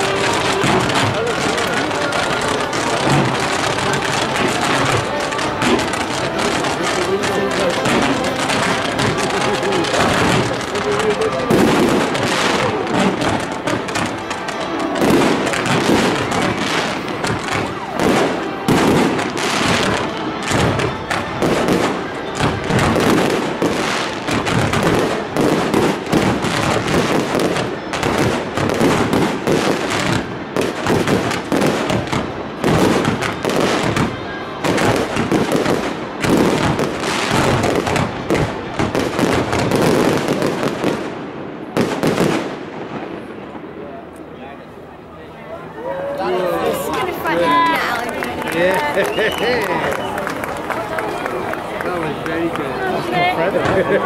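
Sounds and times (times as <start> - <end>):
fireworks bursting and crackling: 0.0 - 44.3, 45.9 - 54.0.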